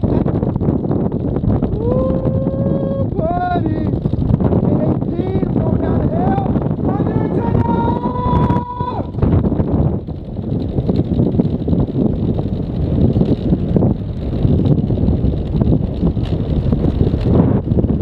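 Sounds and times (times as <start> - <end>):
vehicle rumbling on bumpy road: 0.0 - 18.0
wind buffeting microphone: 0.0 - 18.0.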